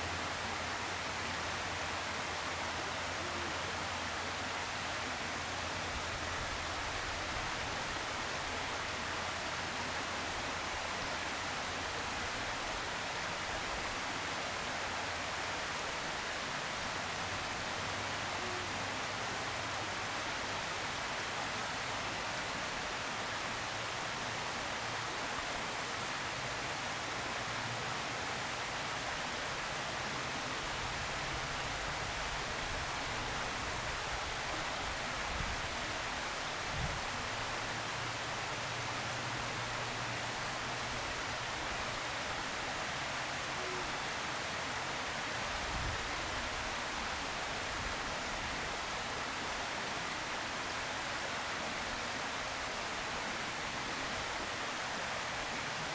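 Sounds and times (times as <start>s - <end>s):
hiss-like background noise: 0.0s - 55.9s.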